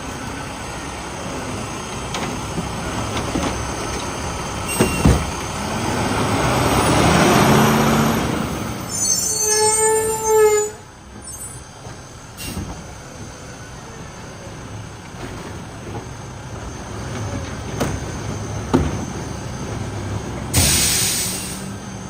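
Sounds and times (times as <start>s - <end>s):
garbage truck engine rumbling: 0.0s - 22.0s
loud hiss burst: 20.5s - 21.8s.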